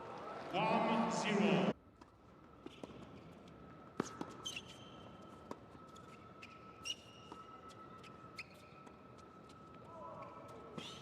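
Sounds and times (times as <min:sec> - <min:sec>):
shoes squeaking on court: 0:04.0 - 0:08.9.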